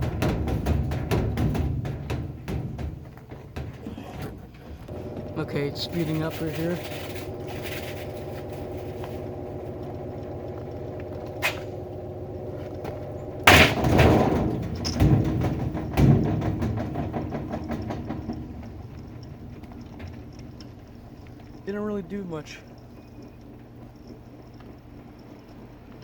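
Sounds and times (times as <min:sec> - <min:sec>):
heavy knocks: 0:00.0 - 0:10.7, 0:12.8 - 0:19.2
washing machine motor hum: 0:00.0 - 0:26.0
loud crash with clattering: 0:13.4 - 0:18.4.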